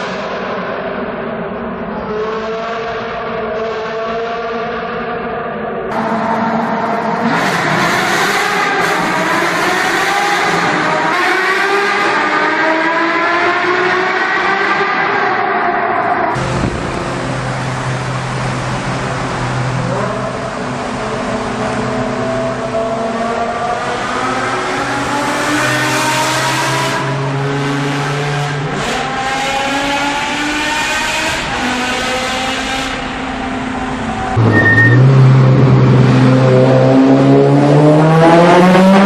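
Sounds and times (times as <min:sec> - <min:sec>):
sports car engine at high revs: 0:05.9 - 0:15.1, 0:16.3 - 0:39.0
bright engine sound: 0:34.4 - 0:35.2.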